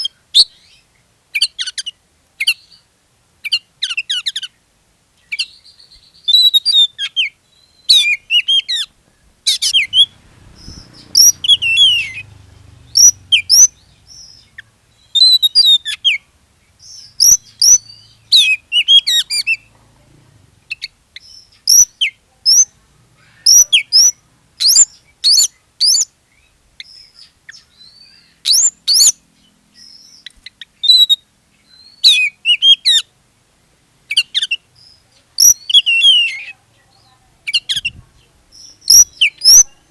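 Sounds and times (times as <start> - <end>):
bird singing whistles and chatter: 5.3 - 8.9, 9.5 - 16.2, 16.8 - 19.7, 20.7 - 29.2, 29.8 - 33.1, 34.1 - 39.9
faint low hum: 7.4 - 28.5.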